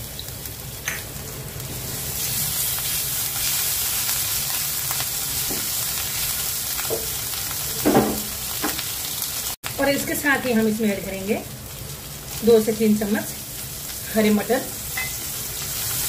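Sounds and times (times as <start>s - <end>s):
chillies sizzling in hot oil: 0.0s - 16.0s.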